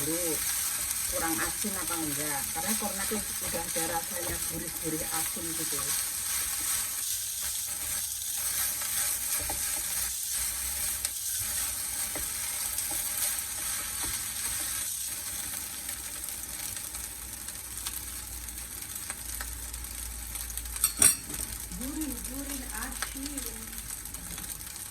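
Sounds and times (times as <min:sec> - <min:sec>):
rice sizzling in a pan: 0:00.0 - 0:24.9.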